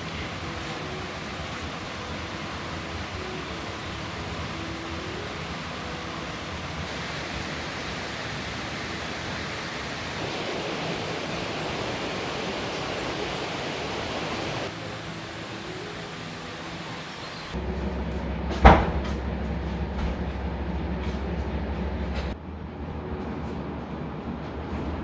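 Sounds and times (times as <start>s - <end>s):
water rushing: 0.0s - 17.6s.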